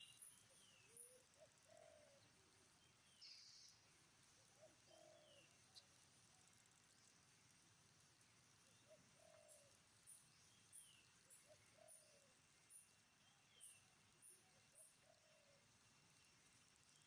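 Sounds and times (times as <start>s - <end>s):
bird cooing: 0.5s - 2.3s, 4.6s - 5.5s, 8.9s - 9.8s, 11.4s - 12.3s.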